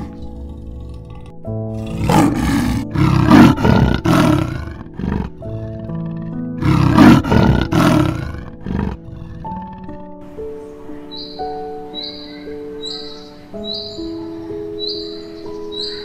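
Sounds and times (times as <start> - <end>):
big cat roaring: 0.0 - 10.0
background music: 0.0 - 16.0.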